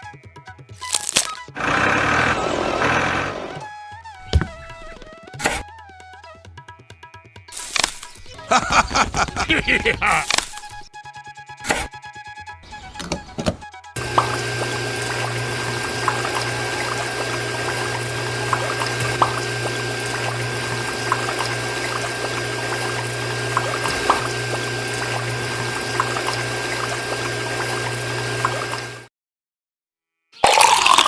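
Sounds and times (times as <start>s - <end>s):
electric water pump humming: 1.5s - 3.7s, 13.2s - 29.1s
small water drips: 14.0s - 29.0s
water pouring and splashing: 14.0s - 29.1s, 30.4s - 31.0s.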